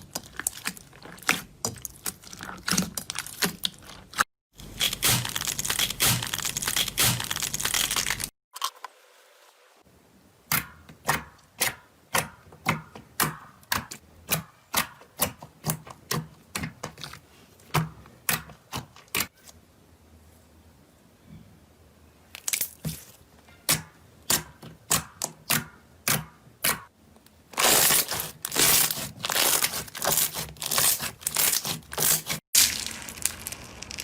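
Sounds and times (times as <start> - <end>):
slime crackling: 27.6 - 34.0.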